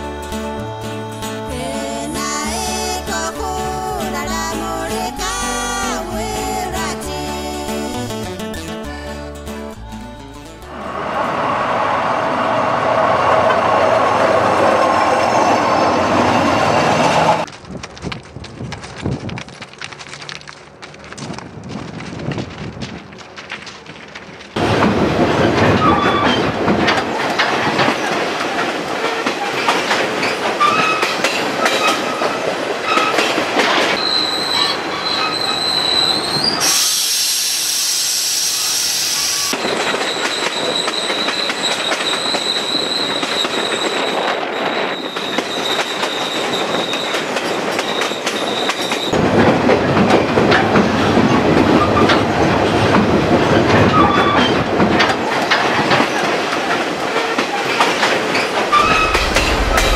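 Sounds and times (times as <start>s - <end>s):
train rumbling on rails: 10.5s - 59.9s
rail joints clicking: 12.9s - 36.8s, 39.5s - 59.9s
high wheel squeal: 25.7s - 26.5s, 29.0s - 33.3s, 33.9s - 49.2s, 53.5s - 54.7s, 57.2s - 59.9s
bright hiss: 36.6s - 39.5s.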